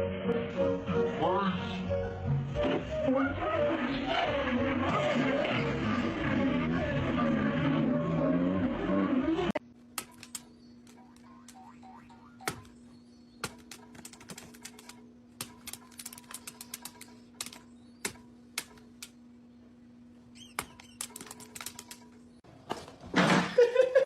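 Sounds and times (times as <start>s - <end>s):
steady low hum: 1.9s - 22.5s
sharp clicks and taps: 9.9s - 11.6s, 13.4s - 19.2s, 20.6s - 22.2s.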